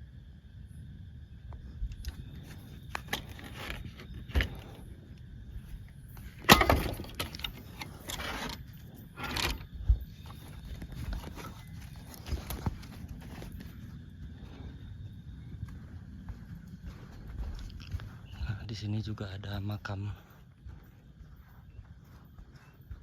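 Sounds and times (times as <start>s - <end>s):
footsteps on forest floor: 15.8s - 19.0s.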